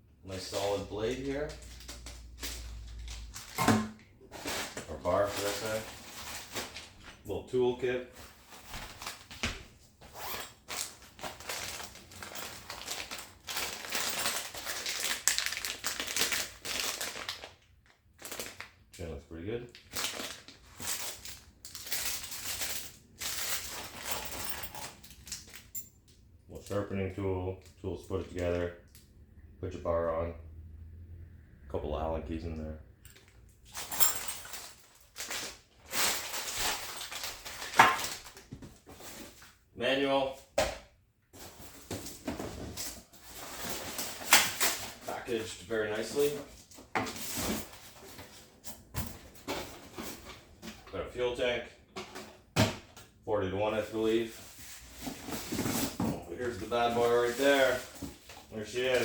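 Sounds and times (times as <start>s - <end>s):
packaging rasping and rustling: 1.5s - 3.7s, 4.3s - 7.1s, 8.2s - 17.6s, 19.8s - 25.7s, 33.7s - 39.5s, 41.4s - 45.2s, 54.2s - 59.0s.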